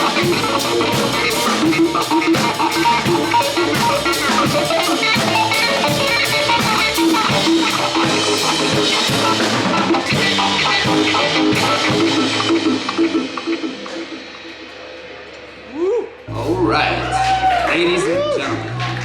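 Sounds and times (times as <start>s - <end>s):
live cumbia band: 0.0s - 14.5s
drum kit beat: 0.0s - 19.0s.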